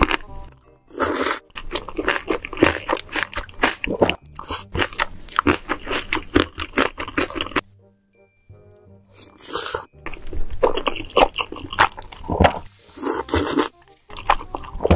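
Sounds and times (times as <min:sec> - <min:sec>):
wet chewing clicks and smacks: 0:01.5 - 0:07.6, 0:10.0 - 0:14.9.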